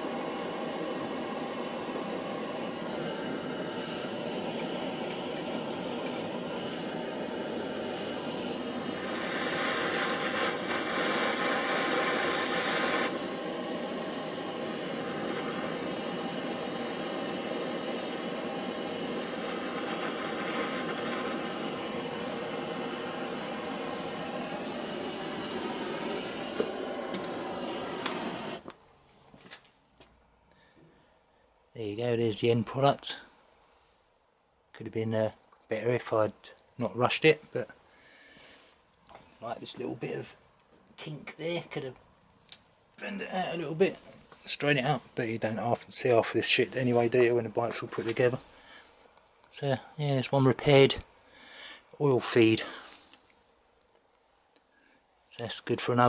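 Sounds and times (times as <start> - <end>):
blowtorch hissing roar: 0.0 - 28.7.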